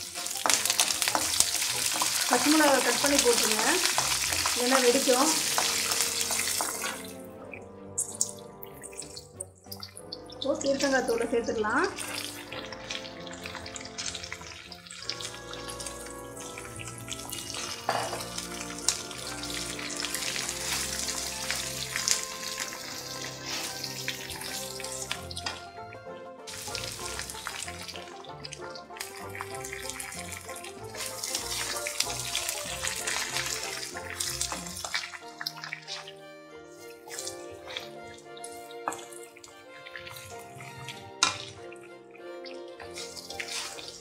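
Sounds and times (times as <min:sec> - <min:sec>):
spatula stirring in iron pan: 0:00.0 - 0:07.2, 0:11.9 - 0:25.6, 0:36.7 - 0:44.0
background music: 0:00.0 - 0:44.0
peel sizzling in frying oil: 0:00.0 - 0:44.0.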